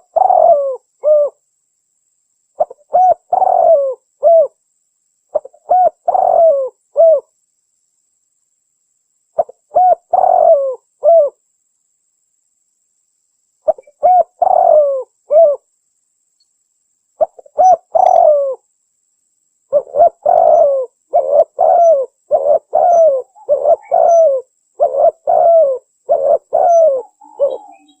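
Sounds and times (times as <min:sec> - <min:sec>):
dove cooing: 0:00.0 - 0:01.4, 0:02.6 - 0:04.6, 0:05.3 - 0:07.3, 0:09.4 - 0:11.4, 0:13.7 - 0:15.6, 0:17.2 - 0:18.6, 0:19.7 - 0:28.0.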